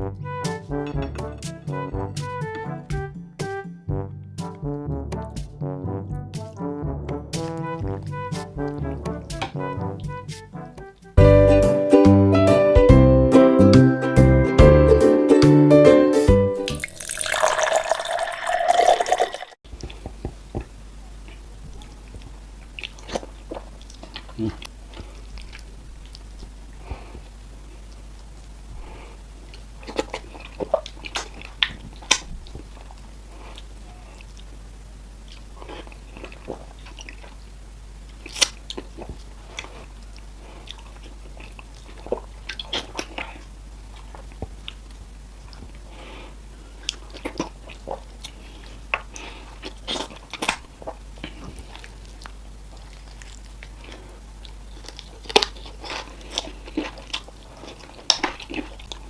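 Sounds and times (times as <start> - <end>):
chewing and swallowing: 16.8 - 26.3, 29.4 - 34.5, 35.2 - 37.5, 38.1 - 45.8, 46.8 - 59.0
faint low hum: 17.1 - 59.0.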